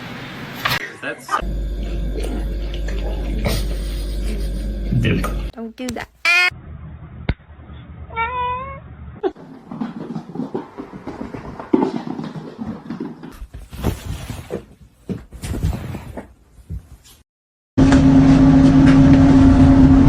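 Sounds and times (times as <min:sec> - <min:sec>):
cat meowing: 0:08.1 - 0:08.8.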